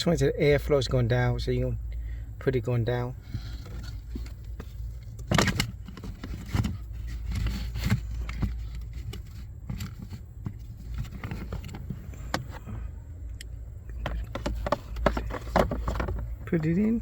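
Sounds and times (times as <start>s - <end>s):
low steady hum: 0.0s - 17.0s
filter scraping and rustling: 3.1s - 12.9s, 13.9s - 17.0s.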